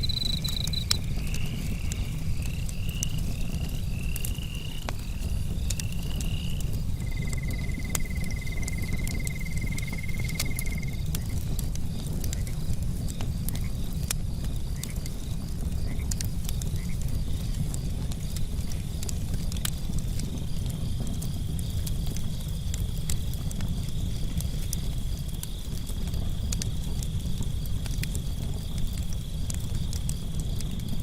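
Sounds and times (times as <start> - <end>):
high insect chirping: 0.0 - 5.2, 5.8 - 11.0
steady insect trill: 0.0 - 13.1
campfire crackling: 0.0 - 31.0
frogs calling: 5.8 - 11.0.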